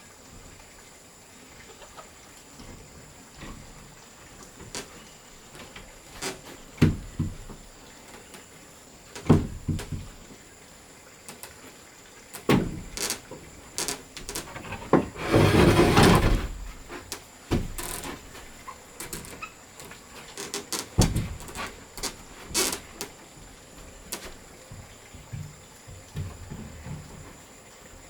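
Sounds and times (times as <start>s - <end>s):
knocks and clunks of wood: 2.6s - 7.8s, 9.2s - 10.3s, 12.4s - 27.5s
rough scraping noise: 14.3s - 17.1s.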